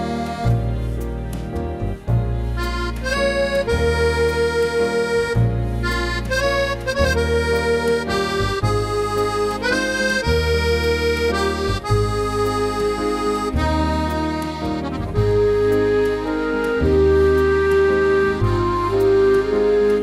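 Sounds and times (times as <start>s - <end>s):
accordion music: 0.0s - 20.0s.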